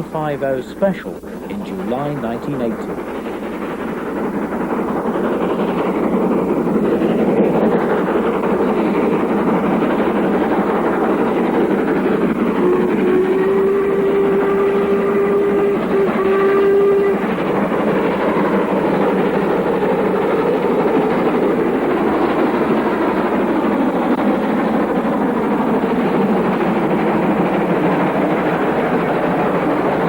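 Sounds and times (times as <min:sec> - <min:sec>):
steam engine and train running: 0:00.0 - 0:30.0
steam locomotive whistle: 0:12.4 - 0:19.2.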